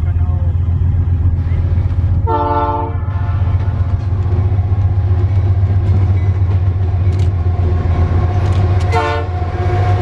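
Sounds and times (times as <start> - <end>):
diesel locomotive engine rumble: 0.0 - 10.0
locomotive horn chord: 2.2 - 3.8, 8.9 - 9.8.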